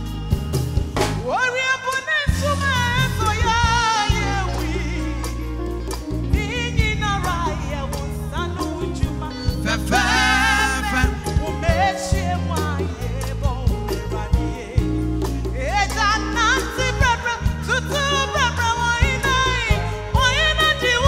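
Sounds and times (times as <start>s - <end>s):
band with bass and drums: 0.0s - 21.0s
person singing gospel: 1.2s - 21.0s.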